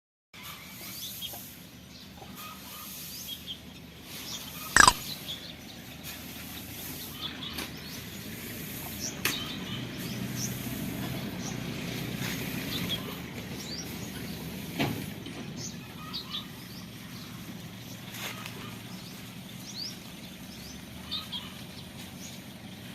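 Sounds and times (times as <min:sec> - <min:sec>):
birds chirping: 0:04.8 - 0:05.0.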